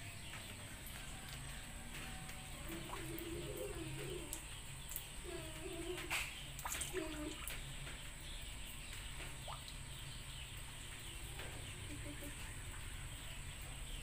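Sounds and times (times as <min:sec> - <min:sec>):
dove cooing: 0:01.6 - 0:07.4.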